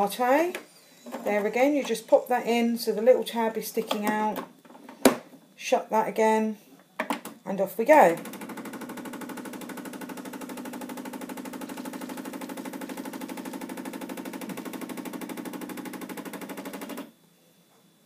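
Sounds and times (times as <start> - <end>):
coffee machine pump buzzing: 7.9 - 17.2.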